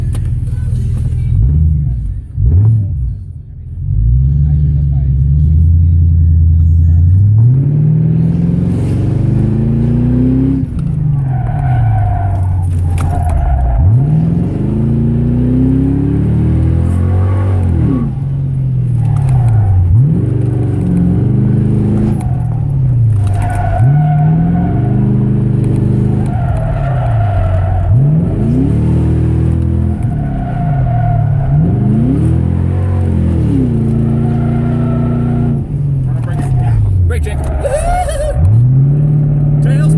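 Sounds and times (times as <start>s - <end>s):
loud car engine revving: 0.9s - 3.2s, 3.8s - 39.9s
tyres squealing: 8.9s - 38.9s.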